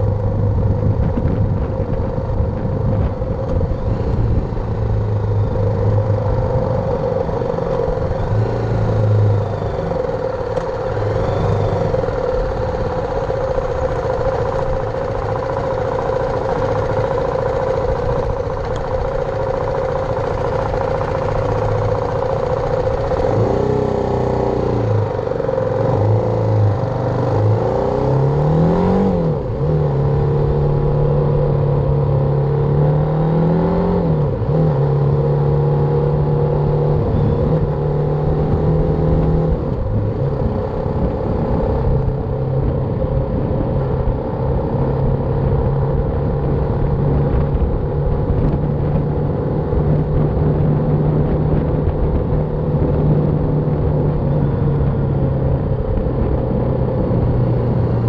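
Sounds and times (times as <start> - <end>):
motorcycle engine revving and cruising: 0.0 - 58.0.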